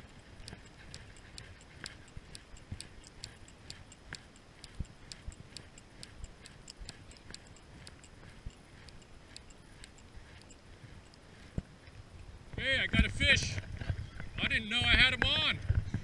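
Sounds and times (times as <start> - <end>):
raindrops ticking: 0.0 - 11.6.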